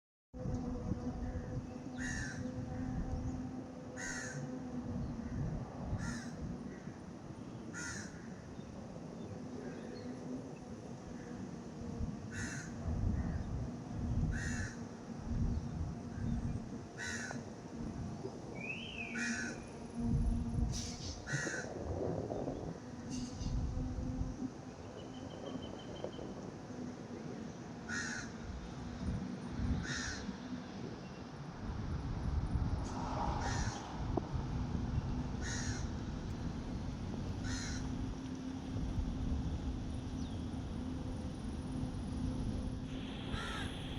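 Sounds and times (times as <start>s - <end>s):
steady low hum: 0.4s - 43.9s
crow cawing: 2.0s - 2.5s, 4.0s - 4.5s, 6.0s - 6.4s, 7.7s - 8.4s, 12.3s - 12.7s, 14.3s - 14.8s, 17.0s - 17.4s, 21.3s - 21.7s, 27.9s - 28.4s, 29.8s - 30.2s, 33.4s - 33.8s, 35.4s - 35.9s, 37.4s - 37.9s, 43.3s - 43.8s.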